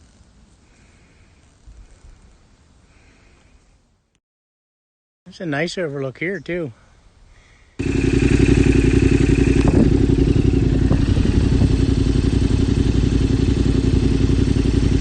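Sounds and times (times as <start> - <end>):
motorcycle engine running: 7.8 - 15.0.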